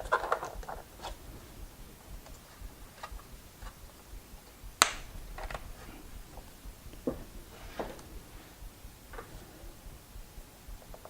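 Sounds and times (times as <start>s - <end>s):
wires and connectors clicking: 0.0s - 11.0s.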